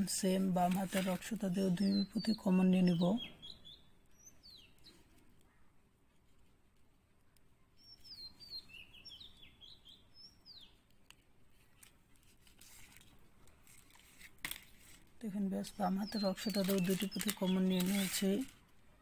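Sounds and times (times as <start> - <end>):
faint bird chirps: 1.6 - 5.8, 7.6 - 10.8
plastic beads clicking: 16.4 - 18.6.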